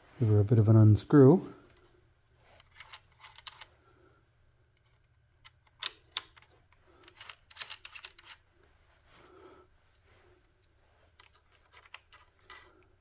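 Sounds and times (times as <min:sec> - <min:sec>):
small parts clicking and rattling: 0:02.5 - 0:03.8, 0:04.7 - 0:08.5, 0:10.4 - 0:12.9.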